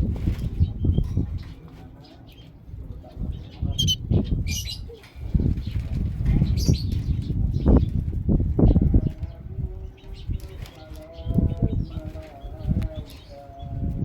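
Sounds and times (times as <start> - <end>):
birds fluttering wings against cage: 0.0 - 2.0, 5.0 - 9.3, 10.0 - 14.0
short high bird chirps: 3.8 - 4.0.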